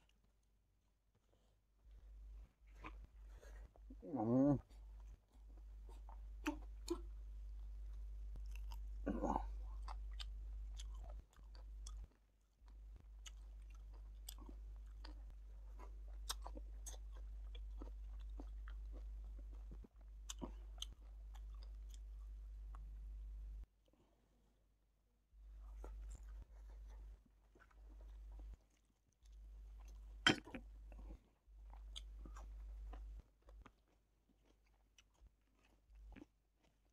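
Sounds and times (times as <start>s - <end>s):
man chewing food: 0.0s - 23.7s, 25.4s - 36.9s
steady low hum: 1.9s - 23.7s
short vocal sound: 3.9s - 4.6s, 9.0s - 9.6s.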